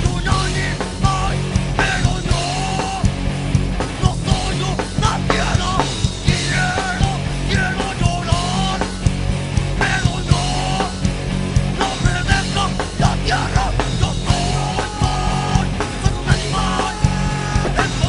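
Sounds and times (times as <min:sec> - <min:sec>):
distorted guitar: 0:00.0 - 0:18.0
drums keeping a steady beat: 0:00.0 - 0:18.0
rock band playing: 0:00.0 - 0:18.0.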